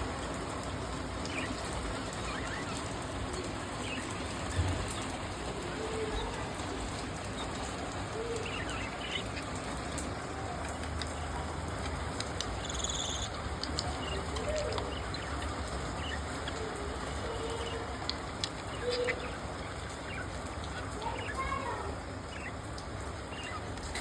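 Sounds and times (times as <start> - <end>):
lower wavering bird calls: 1.1 - 11.3, 12.5 - 23.7
budgerigars chirping: 8.2 - 9.6, 12.6 - 13.4.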